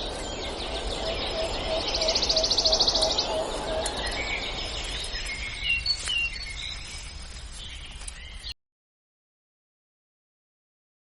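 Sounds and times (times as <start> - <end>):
birds chirping: 0.0 - 8.6
outdoor background noise: 0.0 - 8.6.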